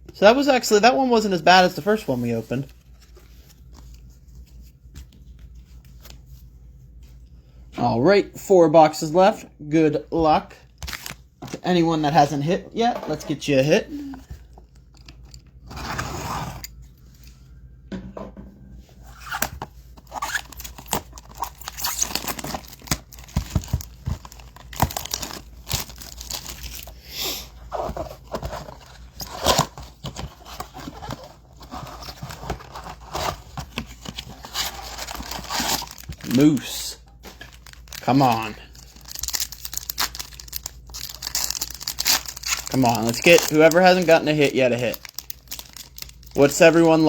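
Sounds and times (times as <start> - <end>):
packaging tearing: 19.2 - 26.9, 34.1 - 36.7, 37.4 - 46.6
wrappers crinkling: 20.0 - 27.0, 34.2 - 47.0.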